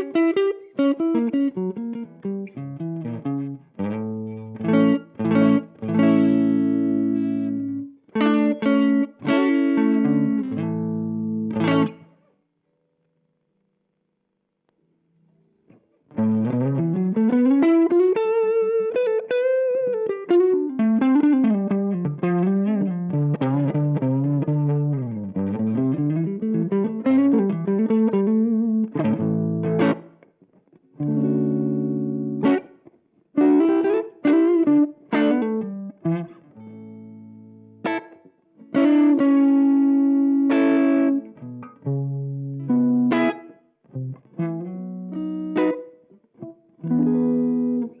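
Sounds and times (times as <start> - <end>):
overdriven electric guitar: 0.0 - 12.3, 15.2 - 48.0.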